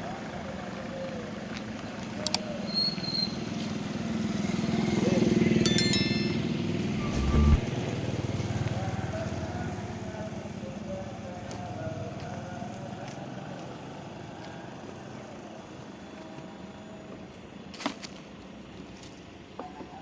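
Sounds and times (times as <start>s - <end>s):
street background noise: 0.0s - 20.0s
short sharp sound: 5.8s - 7.8s.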